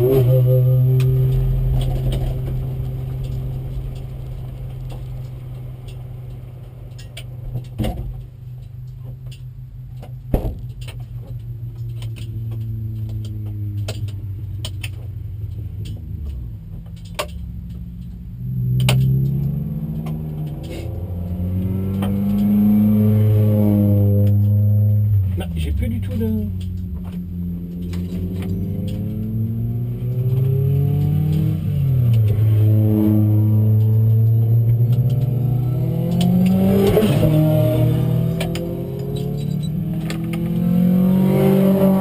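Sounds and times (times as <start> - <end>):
car engine running at low revs: 0.0 - 42.0
sharp engine knocks: 10.3 - 11.0.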